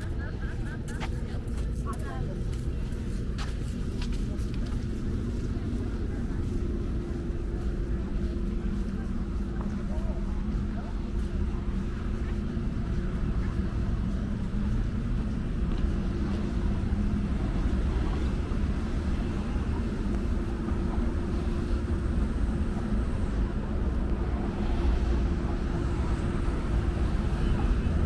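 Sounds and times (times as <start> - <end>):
traffic rumble: 0.0 - 28.0.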